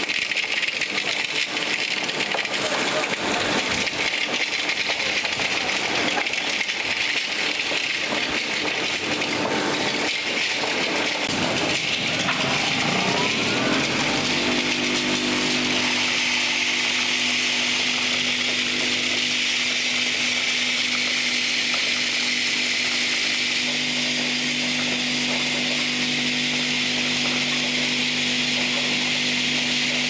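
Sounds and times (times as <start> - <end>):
machinery hum: 11.3 - 20.2.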